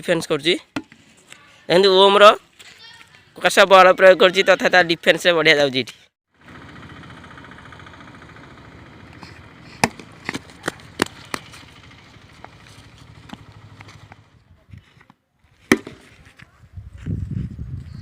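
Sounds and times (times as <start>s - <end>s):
bat knocking a ball: 9.8s - 11.7s, 15.7s - 16.1s.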